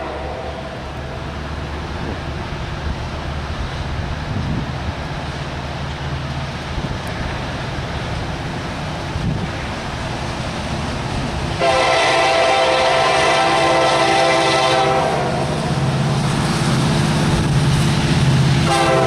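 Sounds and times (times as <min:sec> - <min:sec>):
locomotive air horn chord: 0:00.0 - 0:00.8, 0:11.6 - 0:15.5, 0:18.6 - 0:19.0
diesel locomotive engine rumble: 0:00.0 - 0:19.0.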